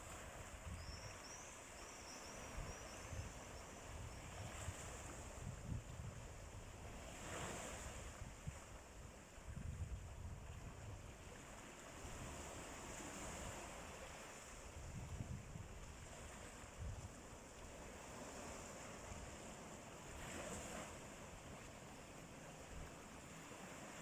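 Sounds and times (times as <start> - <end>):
wind buffeting microphone: 0.0 - 1.2, 2.2 - 11.2, 14.6 - 17.2
sea waves washing in: 0.0 - 24.0.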